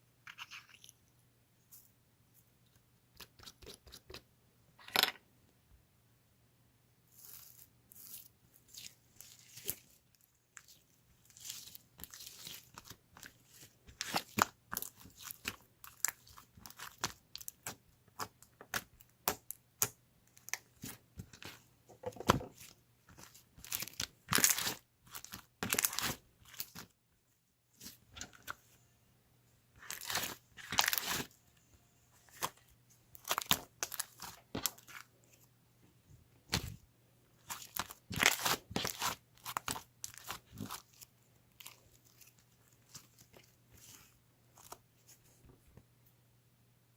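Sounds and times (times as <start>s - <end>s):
crunching crinkling and tearing: 37.4s - 44.8s.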